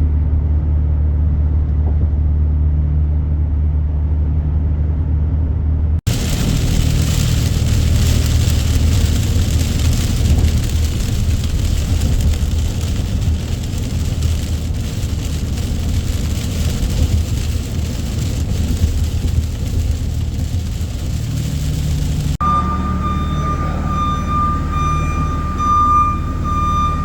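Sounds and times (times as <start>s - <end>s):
road and wind noise: 0.0s - 27.0s
truck engine drone: 0.0s - 27.0s
steady high tone: 22.4s - 27.0s.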